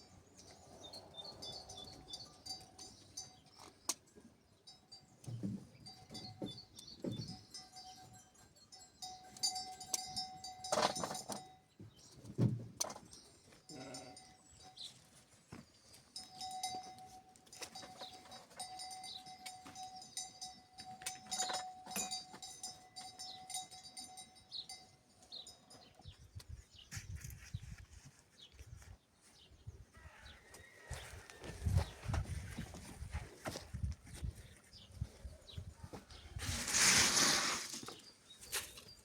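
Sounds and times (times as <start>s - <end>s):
livestock bells jingling: 0.0s - 26.4s
sheep and goats bleating: 13.6s - 14.4s.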